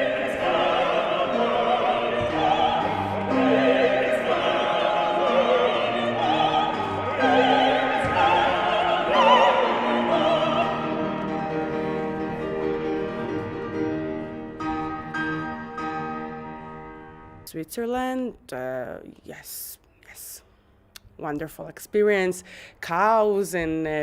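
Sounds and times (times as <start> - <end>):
operatic singing: 0.0 - 13.9
classical accompaniment: 0.0 - 17.6.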